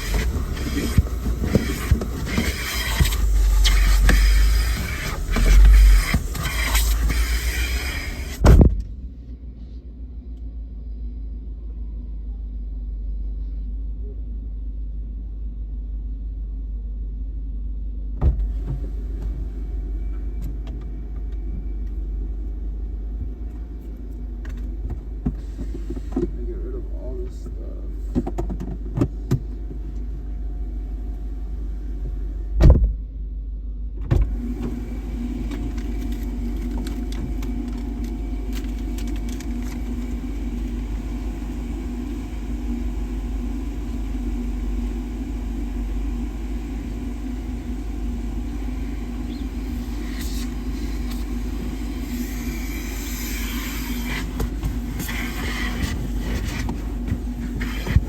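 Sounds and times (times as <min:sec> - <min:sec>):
hissing noise: 0:00.0 - 0:08.6, 0:34.3 - 0:58.0
car engine rumbling: 0:00.0 - 0:58.0.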